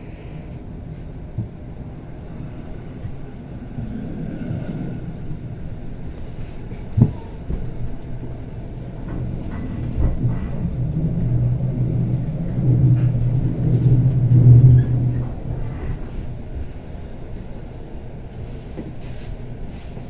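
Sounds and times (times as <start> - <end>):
train wheels rumbling on rails: 0.0 - 20.0
low hum: 2.4 - 18.1.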